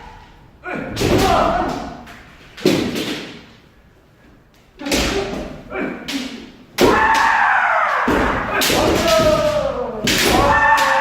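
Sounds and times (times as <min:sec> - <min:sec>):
bamboo sword strikes: 0:08.1 - 0:11.0.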